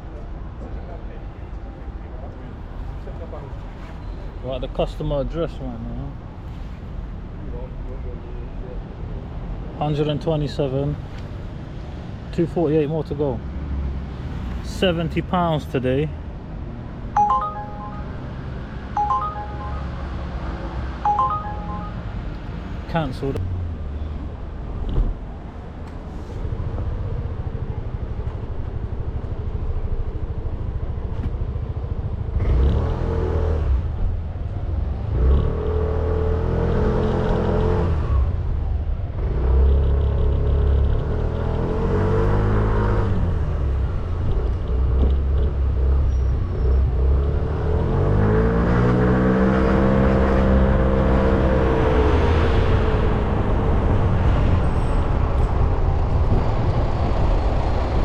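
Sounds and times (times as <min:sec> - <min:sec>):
wind rumble on microphone: 0:53.2 - 0:58.0.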